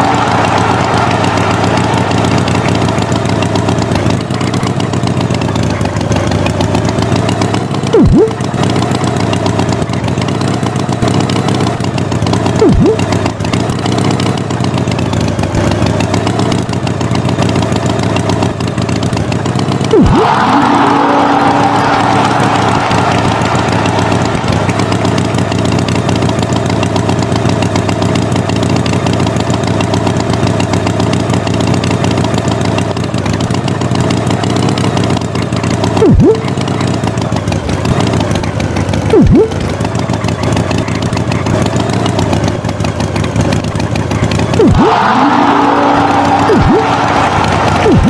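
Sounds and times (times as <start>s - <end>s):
vehicle engine running: 0.0s - 48.0s
short pitch-dropping swoops: 7.8s - 8.8s, 12.6s - 13.3s, 19.9s - 25.7s, 36.0s - 36.6s, 39.1s - 39.7s, 44.5s - 48.0s.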